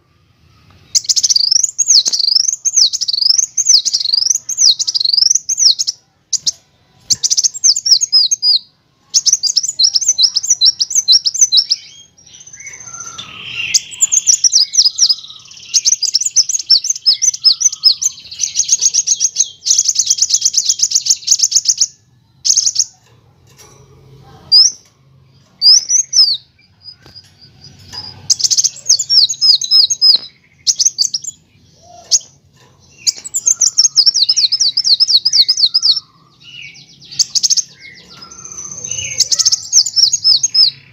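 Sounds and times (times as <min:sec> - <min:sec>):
sunbird chirping trills: 0:00.0 - 0:40.9.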